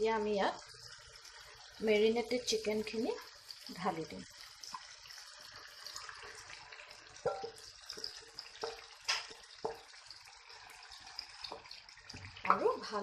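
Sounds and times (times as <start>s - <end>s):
food sizzling in a hot pan: 0.0s - 13.0s
utensil knocking against pan: 7.2s - 7.6s, 8.6s - 9.9s.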